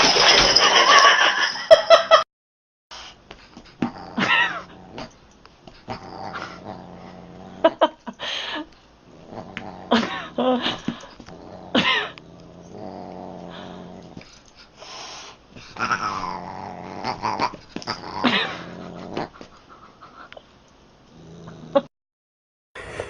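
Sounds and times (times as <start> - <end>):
cat growling: 3.8 - 5.2, 5.8 - 7.9, 9.1 - 14.3, 15.7 - 19.5, 21.1 - 21.9.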